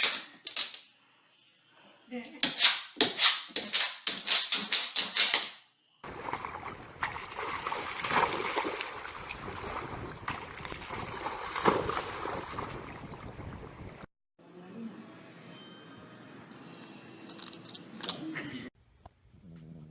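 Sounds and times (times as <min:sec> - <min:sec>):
rushing splashing water: 0:06.0 - 0:14.1.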